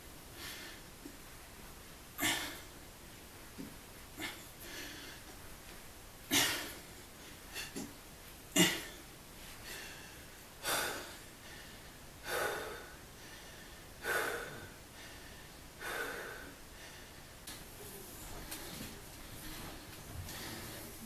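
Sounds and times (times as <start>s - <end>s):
person breathing hard: 0.4s - 0.9s, 4.2s - 5.4s, 9.5s - 17.3s, 18.4s - 21.0s.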